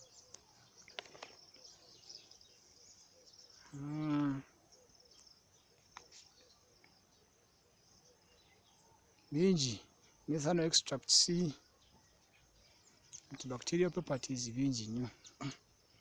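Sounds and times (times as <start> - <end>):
insects chirring: 0.0 - 16.0
man humming: 3.7 - 4.5.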